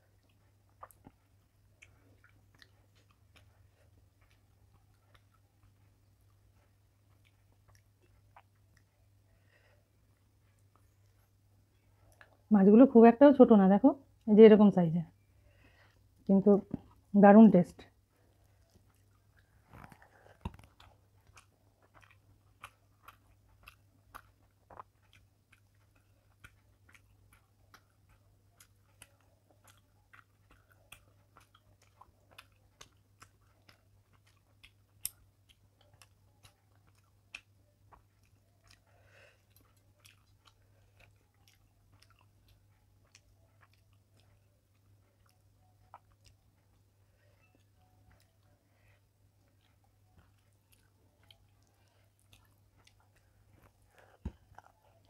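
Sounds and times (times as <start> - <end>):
close chewing: 0.0 - 12.5, 18.0 - 55.0
low electrical hum: 0.0 - 55.0
wet mouth clicks: 29.7 - 38.8.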